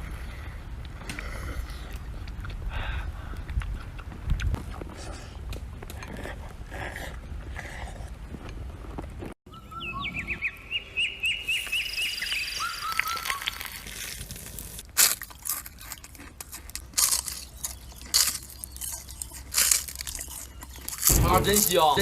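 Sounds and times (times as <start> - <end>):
small bird chirping: 9.5 - 13.6, 17.2 - 21.2
loud sharp crackles: 19.5 - 22.0.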